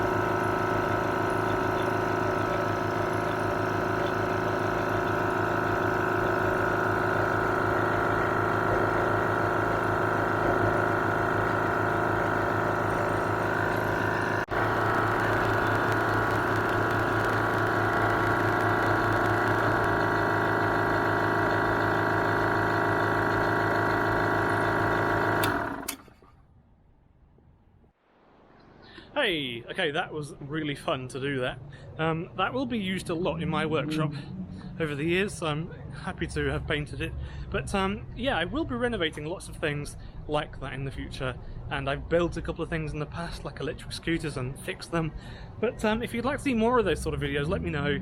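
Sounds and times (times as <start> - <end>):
air compressor running: 0.0 - 26.3, 37.1 - 37.6.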